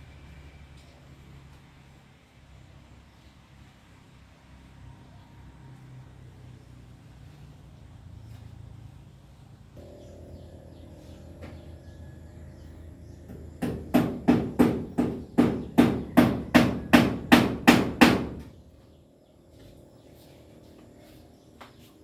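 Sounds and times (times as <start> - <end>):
low steady hum: 6.8 - 22.0
sharp knocks: 13.2 - 18.6.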